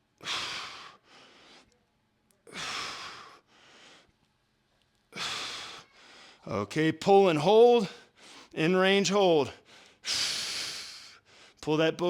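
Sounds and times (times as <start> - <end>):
man breathing hard: 0.2 - 1.7, 2.5 - 4.2, 5.1 - 6.5, 8.0 - 8.6, 9.6 - 11.6.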